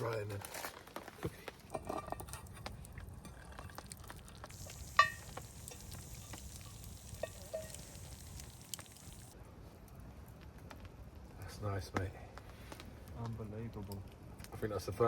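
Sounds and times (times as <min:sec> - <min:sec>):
spoons scraping metal bowls: 0:01.7 - 0:09.3
steady hiss: 0:04.4 - 0:09.4.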